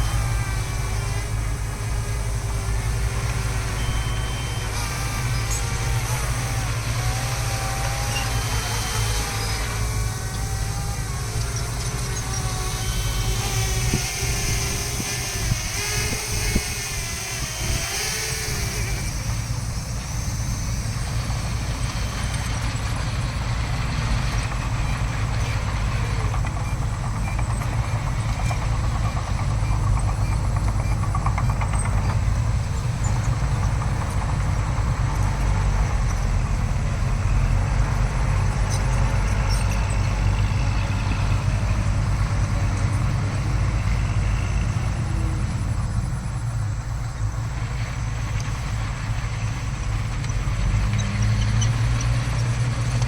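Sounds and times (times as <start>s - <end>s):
wavering whine: 0.0s - 23.6s
heavy diesel machinery drone: 0.0s - 53.0s.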